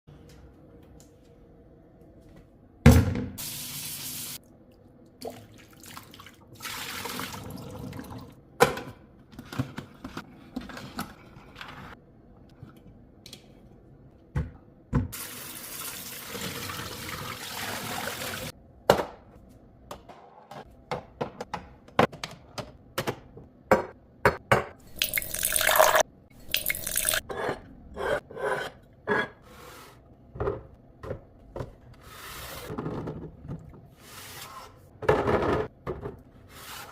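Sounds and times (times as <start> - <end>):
running water: 24.9 - 27.2.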